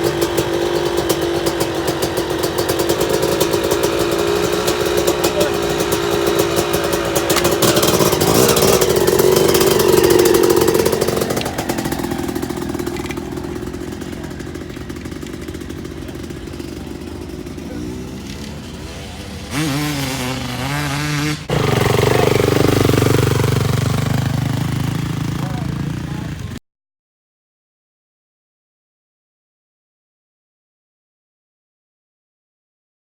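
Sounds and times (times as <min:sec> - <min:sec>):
motorcycle engine revving: 0:00.0 - 0:26.6.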